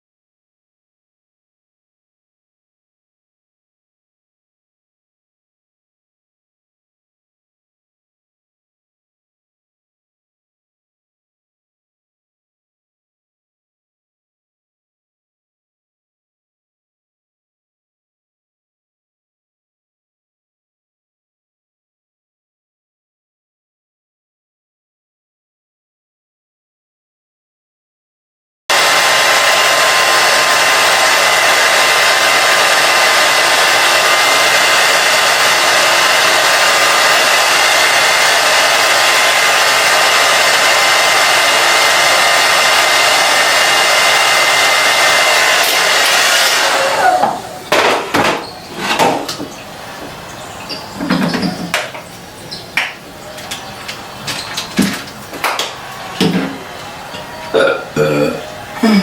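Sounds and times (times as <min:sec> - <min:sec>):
blow dryer running: 0:28.7 - 0:50.2.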